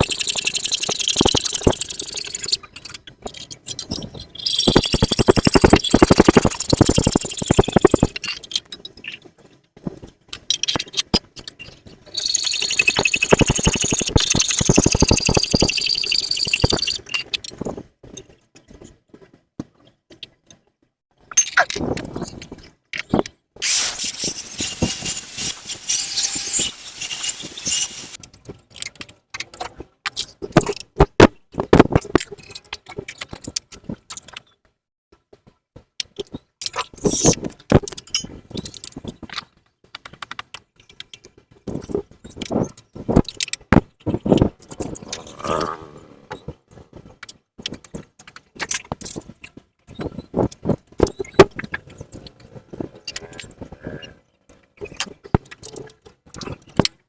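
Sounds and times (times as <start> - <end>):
sharp clicks and knocks: 0.0 - 9.2, 10.3 - 17.7
metal tools clinking and rattling: 23.6 - 28.2.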